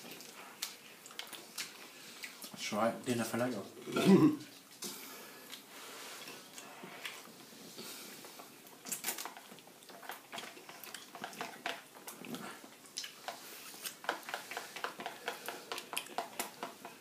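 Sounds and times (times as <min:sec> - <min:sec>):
chewing ice cream bar crackling: 0:08.7 - 0:17.0.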